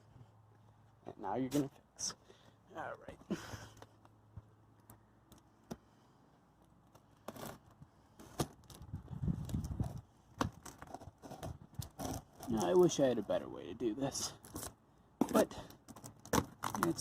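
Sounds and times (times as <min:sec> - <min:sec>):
cardboard box clicks and knocks: 0:15.2 - 0:17.0.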